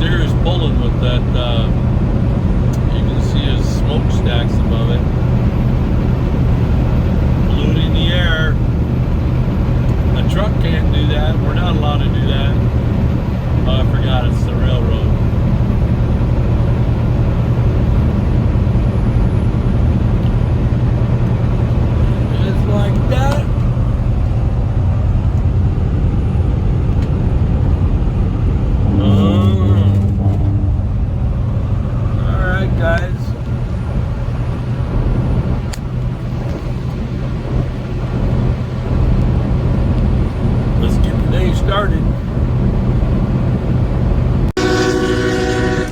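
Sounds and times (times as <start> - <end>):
truck engine and road rumble: 0.0 - 45.9.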